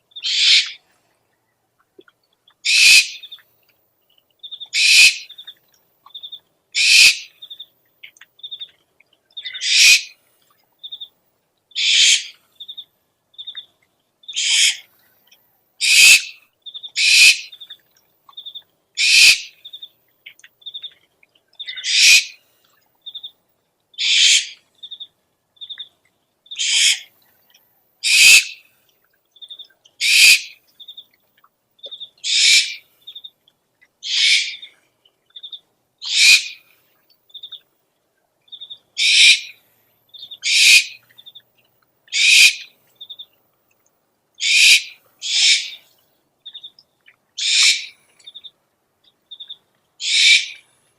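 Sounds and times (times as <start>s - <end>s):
owl hissing screech: 0.2s - 0.8s, 2.7s - 3.2s, 4.8s - 5.2s, 6.8s - 7.2s, 9.6s - 10.1s, 11.8s - 12.3s, 14.4s - 14.8s, 15.8s - 16.4s, 17.0s - 17.5s, 19.0s - 19.5s, 21.8s - 22.4s, 24.0s - 24.6s, 26.6s - 27.1s, 28.0s - 28.6s, 30.0s - 30.5s, 32.3s - 32.8s, 34.0s - 34.7s, 36.1s - 36.6s, 39.0s - 39.5s, 40.4s - 41.0s, 42.2s - 42.6s, 44.4s - 45.8s, 47.4s - 47.9s, 50.0s - 50.6s.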